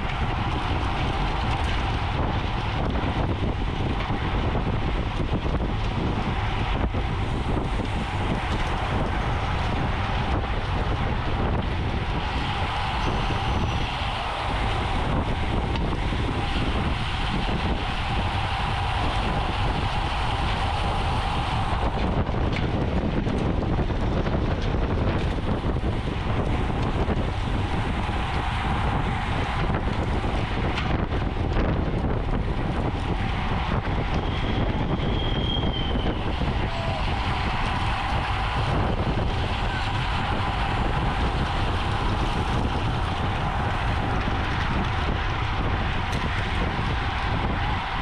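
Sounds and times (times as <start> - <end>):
wind rushing over microphone: 0.0 - 48.0.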